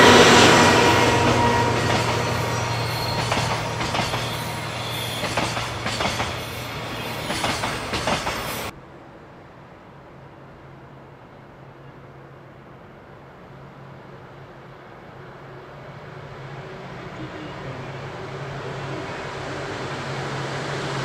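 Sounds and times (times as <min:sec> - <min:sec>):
train wheels clicking over rail joints: 0:00.0 - 0:08.7
diesel locomotive engine drone: 0:00.0 - 0:08.8, 0:13.2 - 0:21.0.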